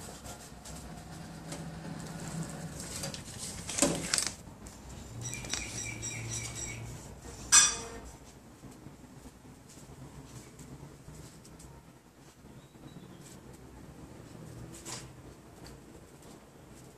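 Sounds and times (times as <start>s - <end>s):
vending machine whir: 0.0s - 7.8s
sharp metallic clink: 7.5s - 7.9s.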